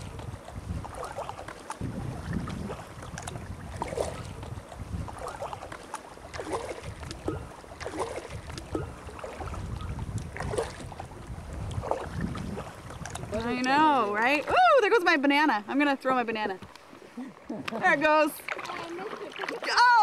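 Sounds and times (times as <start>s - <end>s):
paddle splashing in water: 0.0s - 14.7s, 16.4s - 20.0s
wind on microphone: 0.0s - 15.0s.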